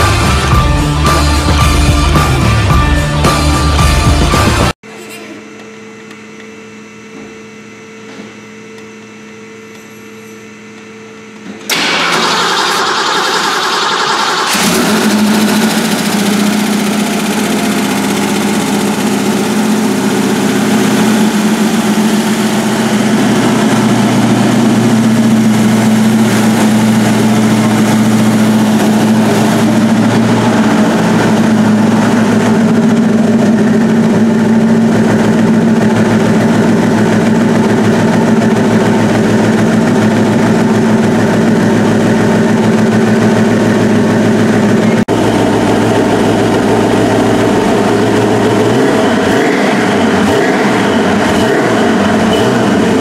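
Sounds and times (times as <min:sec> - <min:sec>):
car engine idling: 0:11.7 - 0:53.0.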